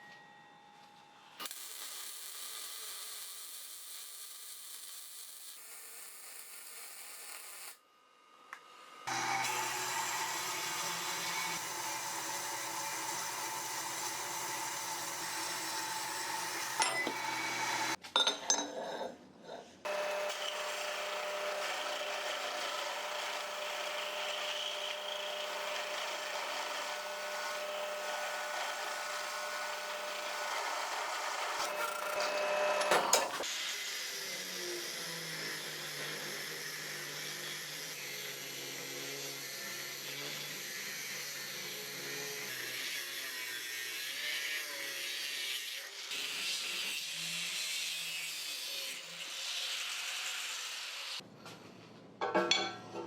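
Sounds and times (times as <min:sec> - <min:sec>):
workshop power tool running: 0:08.9 - 0:18.0, 0:19.9 - 0:47.4.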